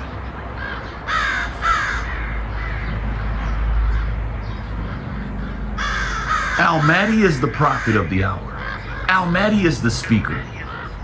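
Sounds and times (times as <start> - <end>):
birds harsh calls: 0.0 - 11.0.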